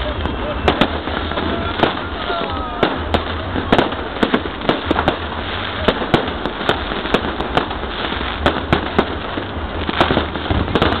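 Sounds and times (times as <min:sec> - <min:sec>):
fireworks exploding: 0:00.0 - 0:11.0.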